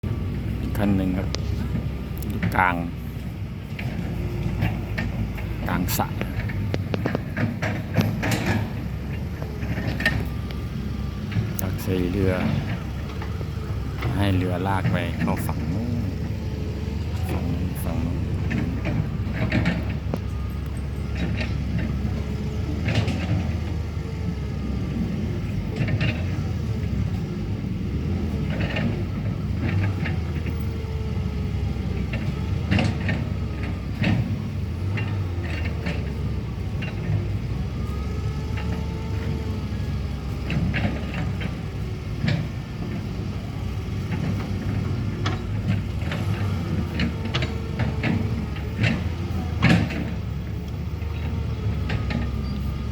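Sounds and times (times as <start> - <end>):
excavator diesel engine running: 0.0 - 52.9
hydraulic whines: 0.0 - 52.9
metallic clanks and knocks: 3.6 - 23.8, 28.4 - 52.6.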